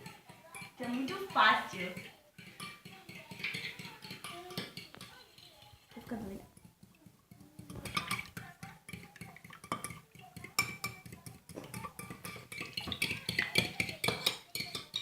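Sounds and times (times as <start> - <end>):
spoon clinking in ceramic mug: 7.8 - 15.0.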